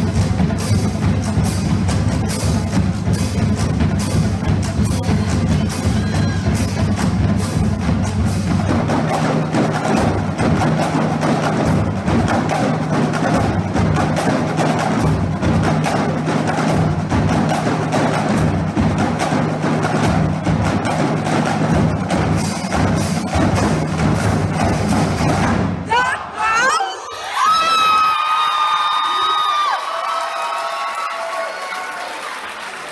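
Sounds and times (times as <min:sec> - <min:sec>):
pitched bass drums: 0:00.0 - 0:25.9.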